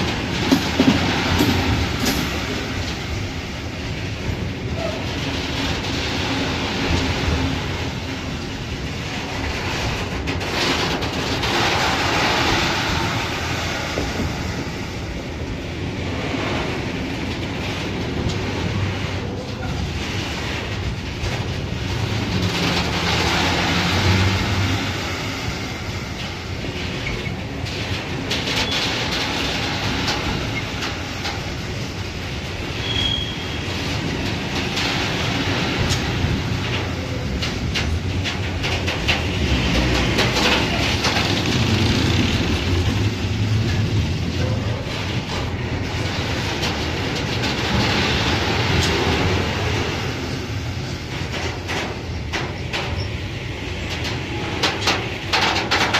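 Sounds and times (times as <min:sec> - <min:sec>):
train wheels clattering over rail joints: 0:00.0 - 0:55.9
high wheel squeal: 0:32.8 - 0:33.6.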